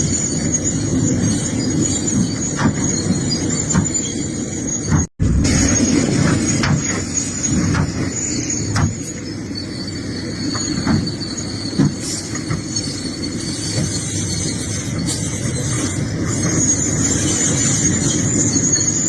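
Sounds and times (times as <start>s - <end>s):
excavator engine rumble: 0.0s - 19.0s
high metallic squeal: 0.0s - 19.0s.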